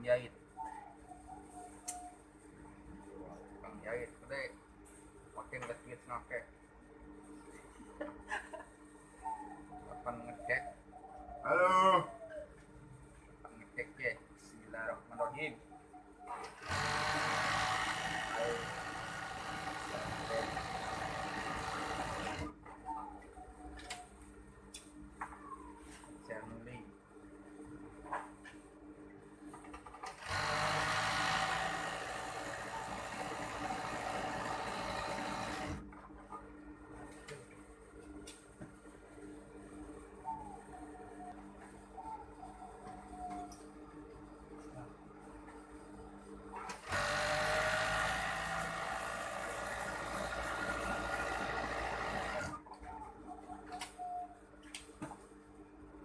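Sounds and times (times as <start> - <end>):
sewing machine running: 16.5 - 22.5, 30.1 - 35.8, 46.8 - 52.6.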